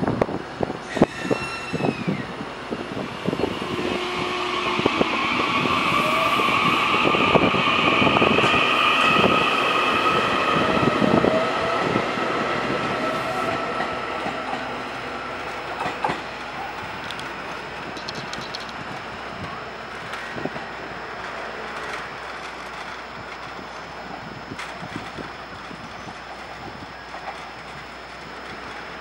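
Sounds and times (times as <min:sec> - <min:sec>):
electric train rail noise: 0:00.0 - 0:29.0
high whine: 0:00.0 - 0:29.0.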